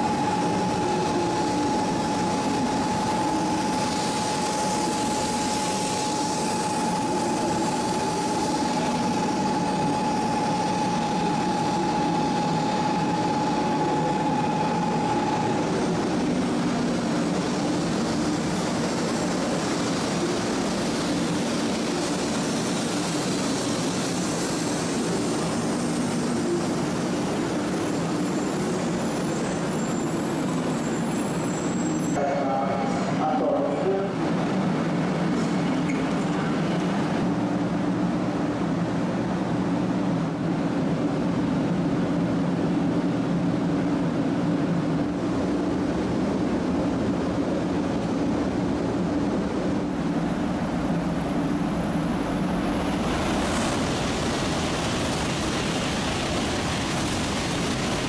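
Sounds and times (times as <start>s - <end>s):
steady high tone: 0.0s - 34.0s
electric train passing: 0.0s - 58.0s.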